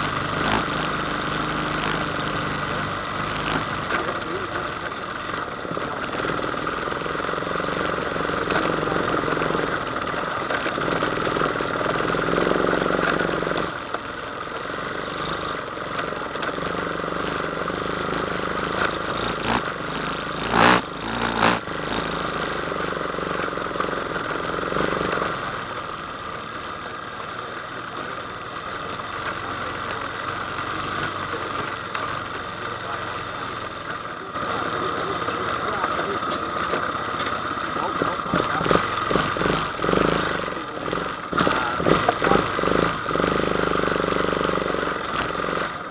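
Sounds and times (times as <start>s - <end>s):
atv engine running: 0.0s - 45.9s.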